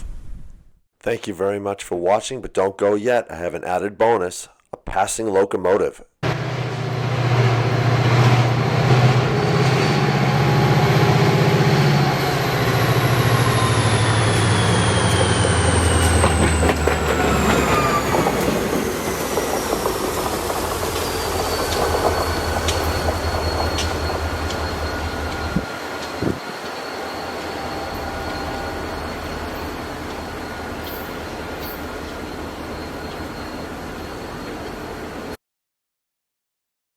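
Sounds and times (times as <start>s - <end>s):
high descending whine: 6.2s - 35.0s
diesel locomotive engine drone: 6.2s - 35.4s
wheels clicking over rail joints: 14.6s - 35.1s.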